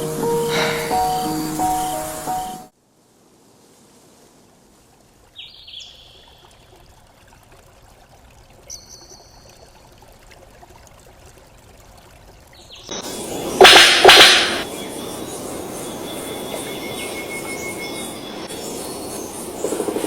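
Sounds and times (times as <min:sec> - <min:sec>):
faint steady hiss: 0:00.0 - 0:20.0
whistled bird calls: 0:00.5 - 0:02.7, 0:12.7 - 0:20.0.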